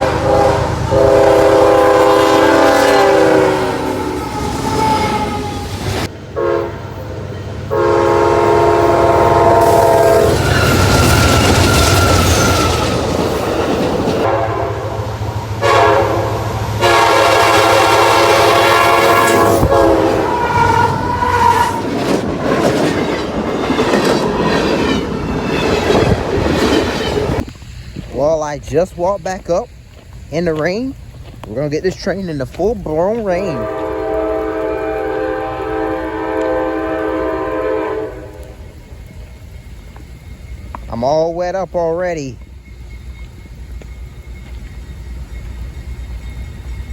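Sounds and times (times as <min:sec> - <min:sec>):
locomotive air horn blasts: 0:00.0 - 0:05.6, 0:06.4 - 0:06.8, 0:07.7 - 0:12.8, 0:14.2 - 0:21.8, 0:33.3 - 0:38.6
diesel train rumbling: 0:00.0 - 0:46.9
rain hissing: 0:07.7 - 0:14.4, 0:27.2 - 0:41.0.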